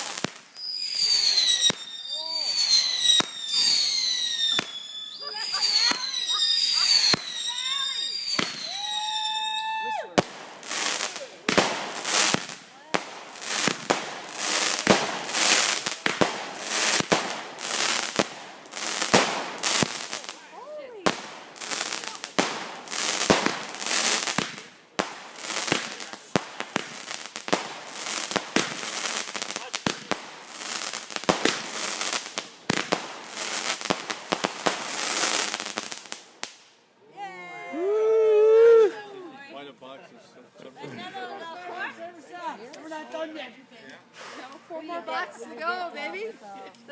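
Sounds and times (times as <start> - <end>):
firework hissing: 0.0 - 9.5, 10.2 - 36.7, 44.1 - 44.6
firework bangs: 0.0 - 36.7.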